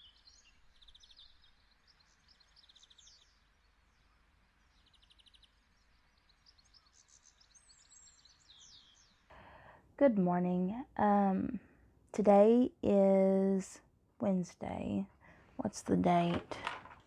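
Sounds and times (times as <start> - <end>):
songbirds chirping: 0.0 - 17.0.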